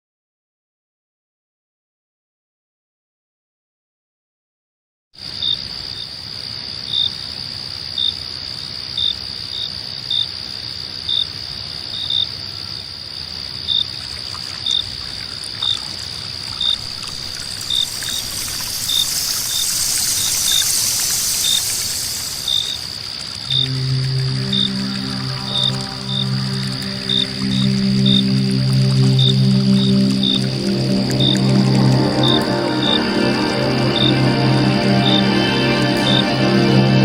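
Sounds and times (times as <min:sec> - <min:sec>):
cricket trilling: 0:05.2 - 0:36.5
short cricket chirps: 0:11.1 - 0:36.8
hiss: 0:16.6 - 0:24.8.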